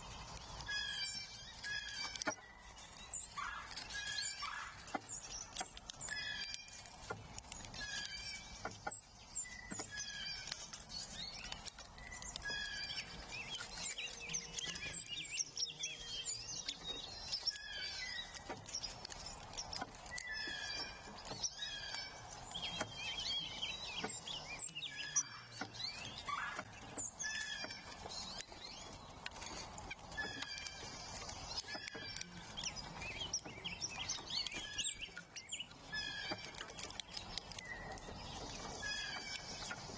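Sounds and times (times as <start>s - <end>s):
songbirds singing: 12.3s - 17.5s, 21.6s - 26.3s, 32.1s - 36.3s.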